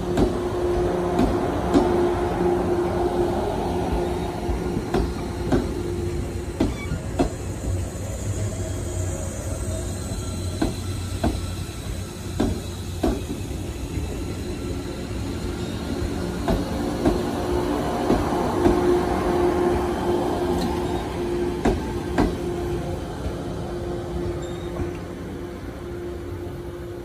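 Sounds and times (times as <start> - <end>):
train wheels clacking over joints: 4.8 - 5.8, 10.5 - 13.6, 16.4 - 17.3
high wheel squeal: 5.8 - 16.3, 24.2 - 25.0.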